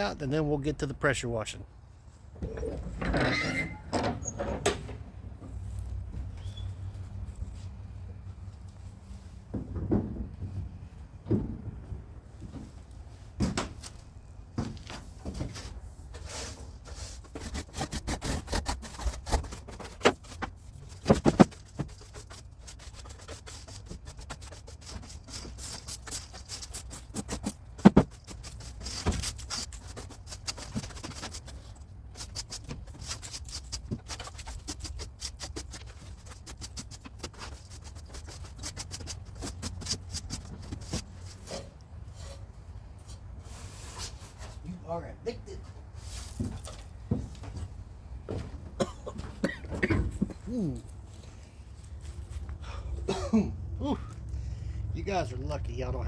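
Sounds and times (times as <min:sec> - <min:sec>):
broom sweeping floor: 0:43.0 - 0:44.6.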